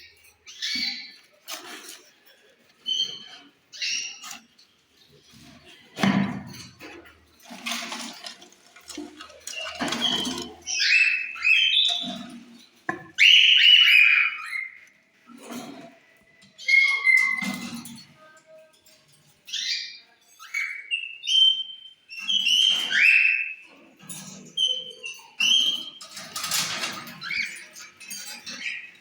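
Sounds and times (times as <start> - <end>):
rustling: 6.6 - 12.8.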